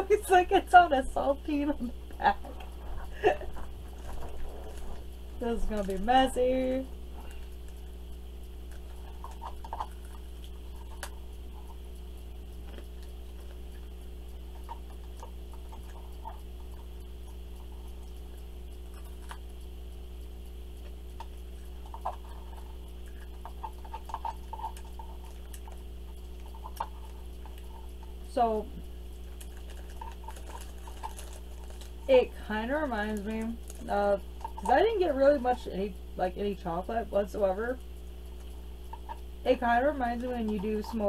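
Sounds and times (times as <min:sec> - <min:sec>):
steady low hum: 0:00.0 - 0:41.0
person chewing sticky food: 0:08.6 - 0:19.6, 0:20.8 - 0:28.3, 0:29.2 - 0:32.1.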